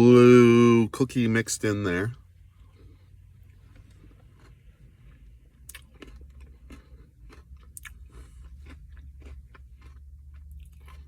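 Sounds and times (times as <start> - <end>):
low steady hum: 0.0 - 11.0
spoon clicking and crunching: 5.7 - 11.0.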